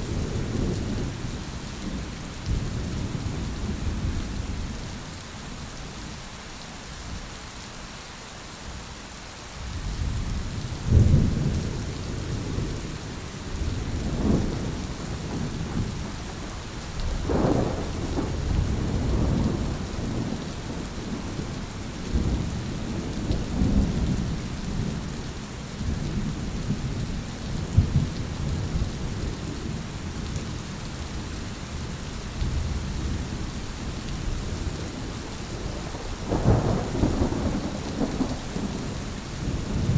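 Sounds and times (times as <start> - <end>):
rain hissing: 8.2 - 39.9
thunder rumbling: 10.8 - 25.2, 25.8 - 30.4, 34.2 - 39.9
thunder cracks: 35.7 - 39.9.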